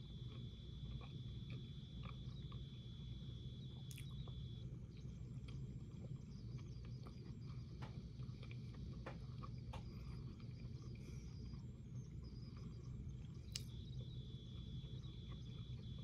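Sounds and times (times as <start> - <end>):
low hum: 0.0 - 16.0
person chewing: 0.1 - 2.8, 3.8 - 13.8.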